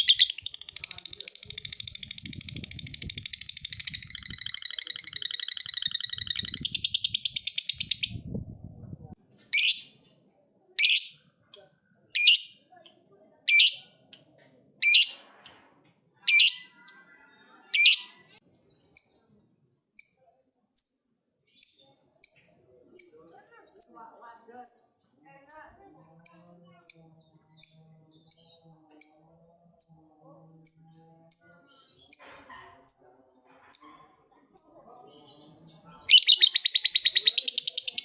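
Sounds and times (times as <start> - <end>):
bird sharp high chirps: 0.0 - 8.3, 36.0 - 38.0
lovebird chattering trill: 0.0 - 8.3, 9.5 - 10.0, 12.2 - 12.6, 16.3 - 16.7, 36.0 - 38.0.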